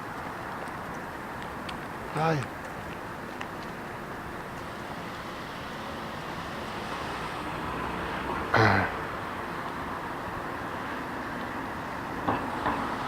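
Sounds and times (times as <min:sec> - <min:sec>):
road traffic noise: 0:00.0 - 0:13.0
vehicle passing: 0:04.8 - 0:13.0.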